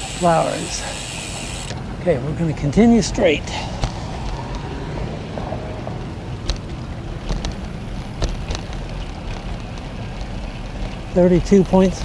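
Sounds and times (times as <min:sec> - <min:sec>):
bicycle tyre noise on road: 0:00.0 - 0:12.0
wind rushing over microphone: 0:00.0 - 0:12.0
sharp clicks: 0:00.1 - 0:01.8.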